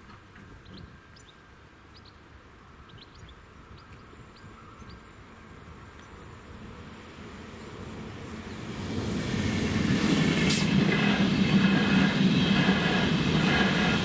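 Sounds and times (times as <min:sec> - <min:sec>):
train rumbling past: 0:05.2 - 0:14.0.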